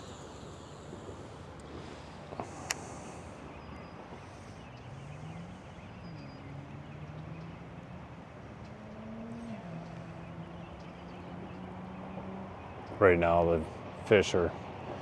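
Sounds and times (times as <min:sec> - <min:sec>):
steady rushing hiss: 0:00.0 - 0:07.1
distant engine running: 0:00.0 - 0:15.0.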